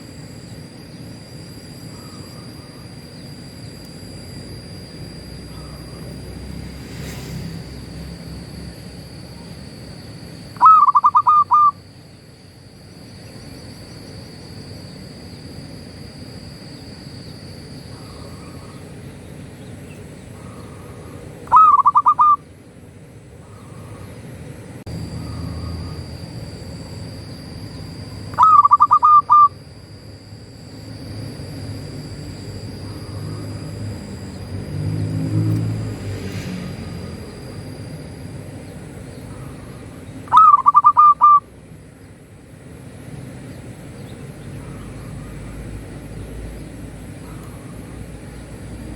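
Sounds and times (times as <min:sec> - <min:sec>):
steady high whine: 0:00.0 - 0:48.9
low rumble: 0:05.6 - 0:09.3
dove cooing: 0:10.5 - 0:11.8, 0:17.8 - 0:22.5, 0:27.6 - 0:29.6, 0:38.8 - 0:41.5, 0:43.4 - 0:45.8.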